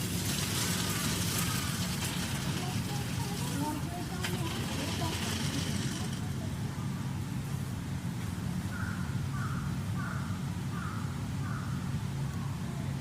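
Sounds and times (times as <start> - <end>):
steady low hum: 0.0 - 13.0
crow cawing: 0.9 - 1.8, 8.7 - 11.9.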